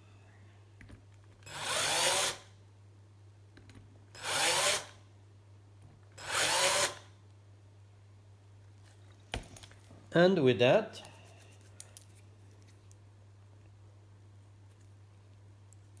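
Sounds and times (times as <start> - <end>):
electric drill whirring: 1.5 - 2.4, 4.2 - 4.9, 6.2 - 7.0.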